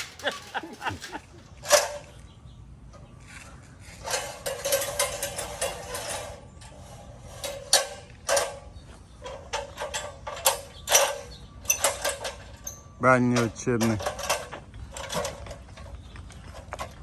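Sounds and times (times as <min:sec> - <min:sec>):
rattling clicks of tools: 0:00.0 - 0:02.1, 0:04.0 - 0:06.8, 0:07.4 - 0:16.0.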